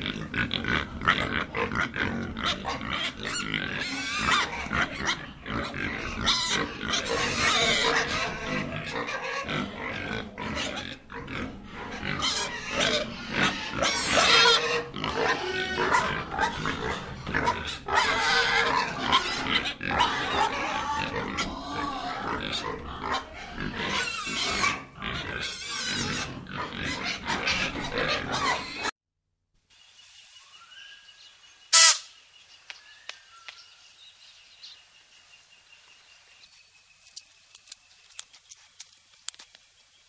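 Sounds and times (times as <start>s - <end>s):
piglets grunting and squealing: 0.0s - 28.9s.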